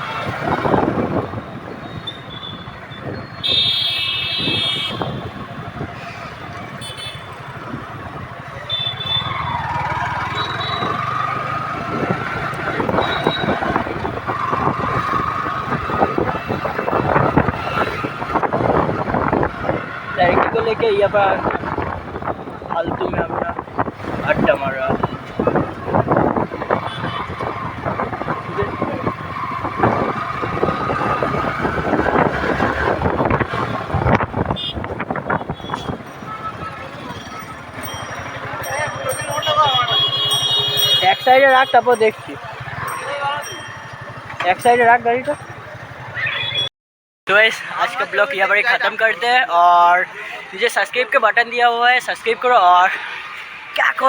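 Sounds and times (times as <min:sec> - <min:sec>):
road noise: 0:00.0 - 0:46.7, 0:47.3 - 0:54.0
traffic: 0:00.0 - 0:46.7, 0:47.3 - 0:54.0
wind buffeting microphone: 0:00.2 - 0:03.4, 0:04.4 - 0:06.8, 0:10.8 - 0:38.4
motorcycle engine: 0:03.5 - 0:20.2, 0:23.6 - 0:46.7.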